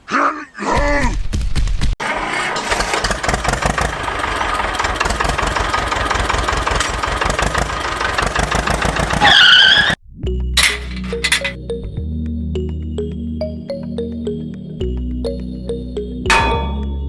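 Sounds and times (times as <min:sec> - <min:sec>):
small machine rattling: 0:02.6 - 0:09.2.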